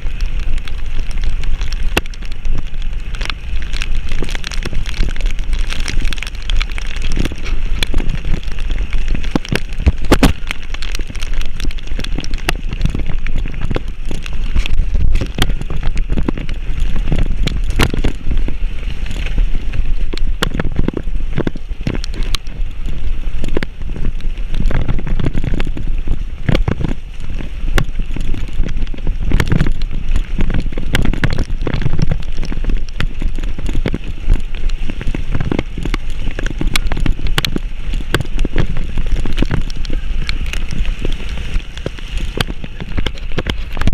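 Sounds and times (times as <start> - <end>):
rain pattering: 0.0 - 43.9
wind buffeting microphone: 0.0 - 43.9.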